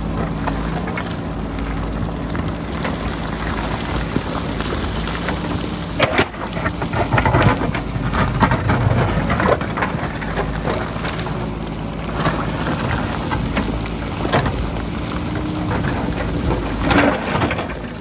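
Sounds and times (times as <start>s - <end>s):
diesel engine running under load: 0.0s - 18.0s
stones and gravel clattering: 2.8s - 18.0s
bucket scraping into rock: 5.9s - 11.1s.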